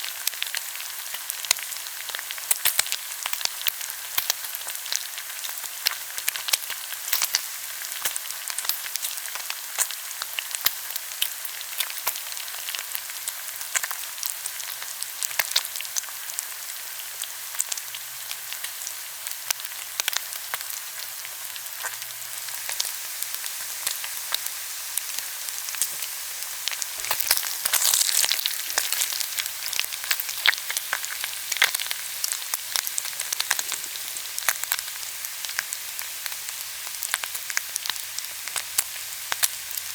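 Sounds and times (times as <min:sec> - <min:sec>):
pork sizzling on a grill: 0:00.0 - 0:39.9
fat popping and crackling: 0:25.7 - 0:31.8.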